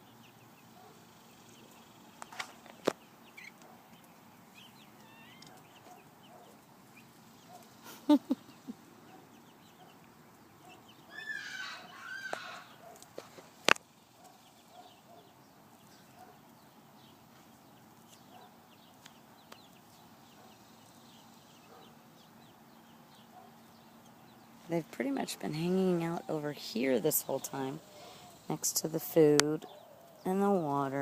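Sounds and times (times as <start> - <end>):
young chickens clucking: 0.0 - 31.0
chickens squawking: 3.1 - 13.4, 25.4 - 31.0.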